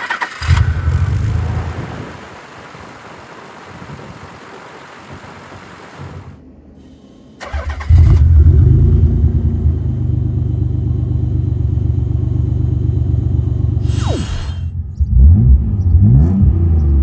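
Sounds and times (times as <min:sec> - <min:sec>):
starter motor cranking: 0:00.0 - 0:02.1, 0:07.4 - 0:14.0
car engine starting and idling: 0:00.0 - 0:02.5, 0:06.8 - 0:17.0.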